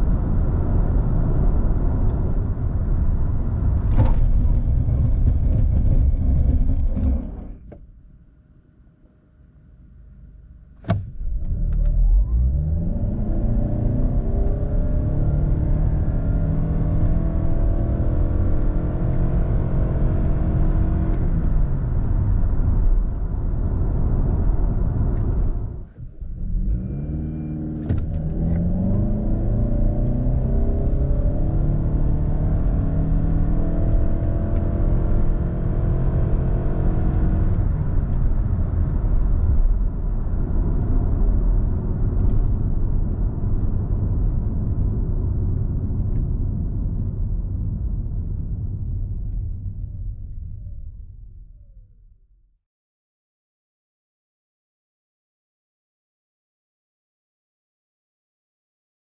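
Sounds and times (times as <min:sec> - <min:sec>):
car engine accelerating hard: 0:10.9 - 0:47.7.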